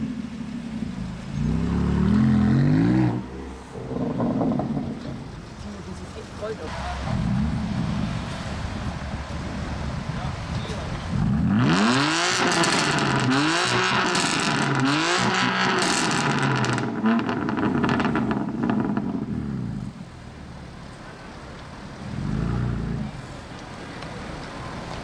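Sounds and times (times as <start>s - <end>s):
car engine revving: 0.0s - 8.5s, 11.1s - 20.0s
exhaust crackles and pops: 10.5s - 19.9s.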